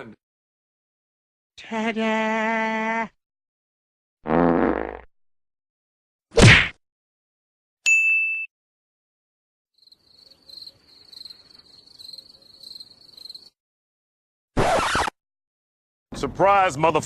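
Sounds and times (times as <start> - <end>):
short high ding: 7.9 - 8.5
crickets chirping: 9.8 - 13.6.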